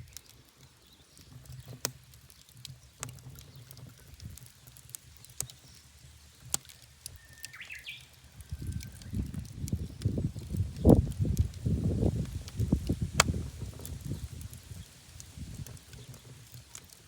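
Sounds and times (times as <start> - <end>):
wood fire burning rumble: 0.0 - 17.0
wood popping in fire: 0.0 - 17.0
bird chirping: 5.5 - 11.0.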